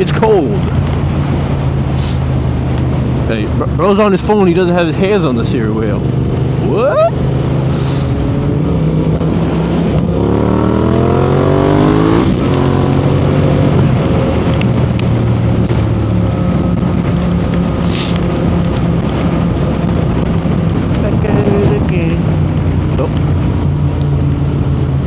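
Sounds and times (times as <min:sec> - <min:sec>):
motorcycle engine revving: 0:05.0 - 0:25.0.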